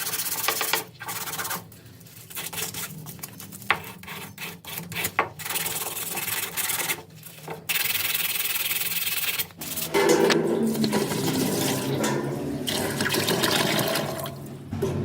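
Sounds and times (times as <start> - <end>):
water running: 9.6 - 14.9.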